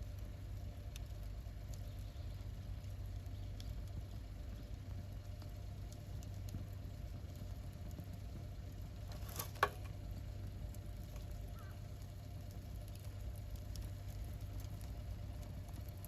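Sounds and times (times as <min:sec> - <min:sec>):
campfire crackling: 0:00.0 - 0:16.0
low fire rumble: 0:00.0 - 0:16.0.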